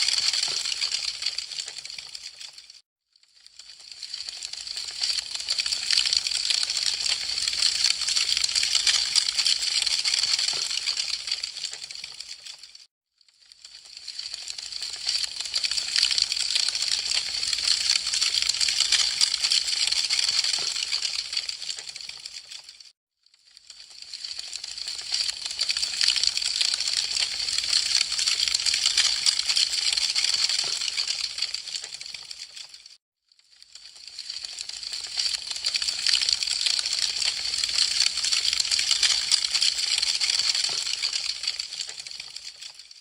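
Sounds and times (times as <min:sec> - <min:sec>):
wood fire crackling and popping: 0:00.3 - 0:02.6, 0:20.5 - 0:22.6.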